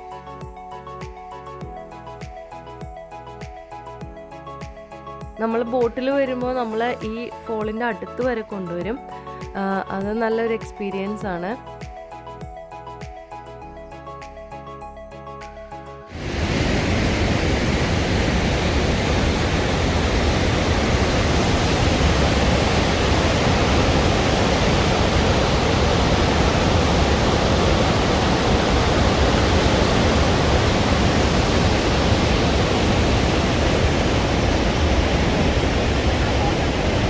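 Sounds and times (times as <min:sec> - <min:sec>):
waterfall rushing: 0:16.1 - 0:37.0.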